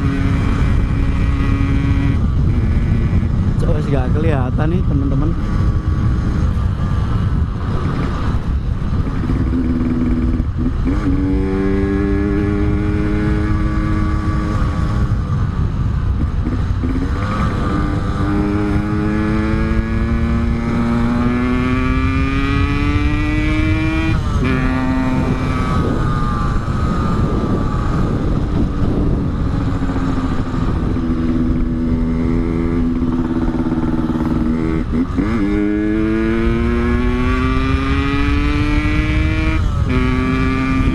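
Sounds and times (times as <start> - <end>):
motorcycle engine accelerating: 0.0 - 40.9
wind rumble: 0.0 - 40.9.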